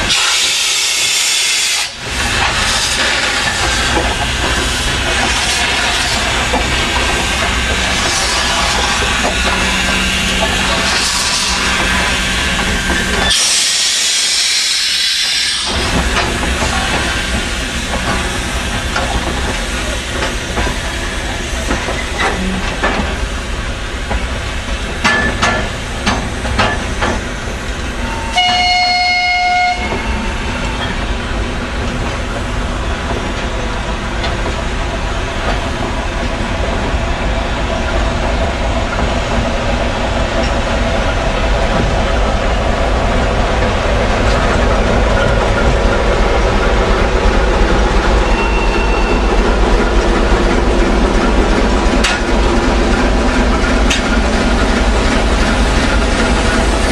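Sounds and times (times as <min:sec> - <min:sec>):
steam hissing: 0:00.0 - 0:23.6
train rumbling on rails: 0:00.0 - 0:56.9
locomotive whistle blast: 0:28.1 - 0:30.8.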